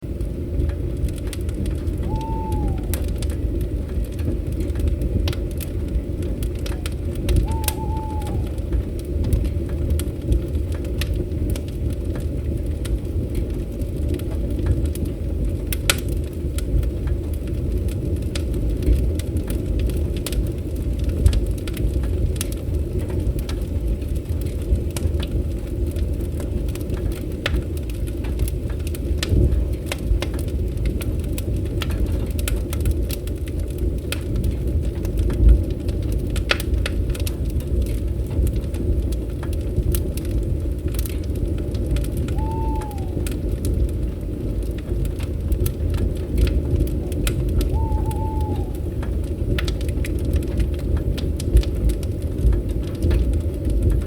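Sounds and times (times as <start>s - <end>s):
fire crackling and popping: 0.0s - 54.0s
low rumble: 1.2s - 10.3s, 42.0s - 44.9s, 45.7s - 50.1s
falling whistled notes: 2.1s - 3.0s, 7.5s - 8.6s, 42.4s - 43.2s, 47.7s - 48.8s.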